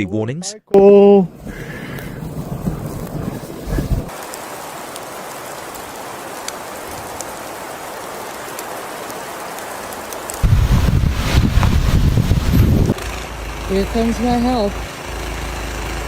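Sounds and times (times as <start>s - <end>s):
rain hissing and pattering: 1.3s - 15.0s
low rumble: 10.4s - 13.0s.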